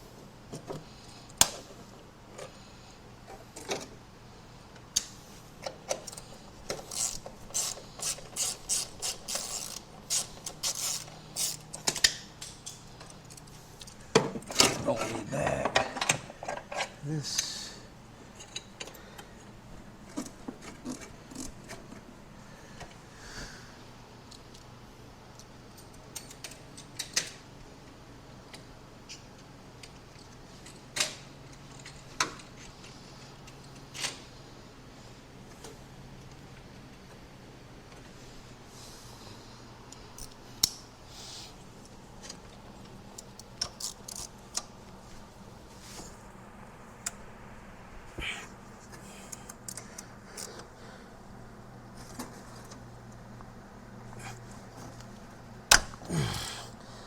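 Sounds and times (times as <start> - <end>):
faint steady hum: 0.0 - 57.0
hand tools clicking and clinking: 5.9 - 14.0
steady low hum: 38.1 - 57.0.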